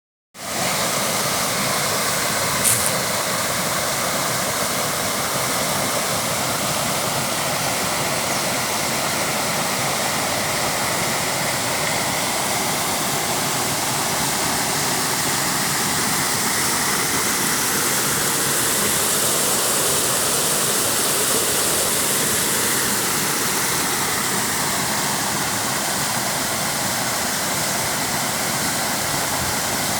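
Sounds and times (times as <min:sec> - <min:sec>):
brief click: 0:02.6 - 0:03.1.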